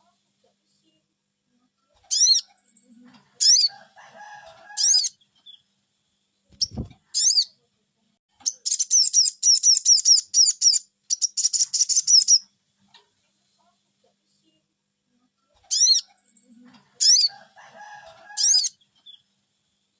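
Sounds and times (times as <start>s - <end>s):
bird chirping: 2.0s - 3.8s, 6.5s - 7.6s, 8.3s - 12.5s, 15.6s - 17.5s.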